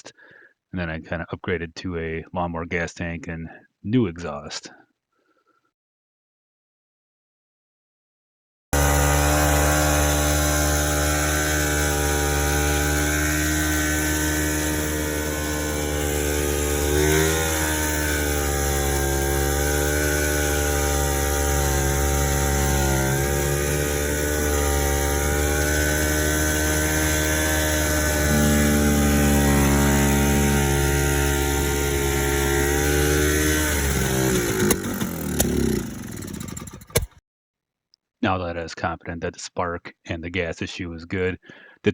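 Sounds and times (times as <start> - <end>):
snowmobile engine running: 8.8 - 37.1.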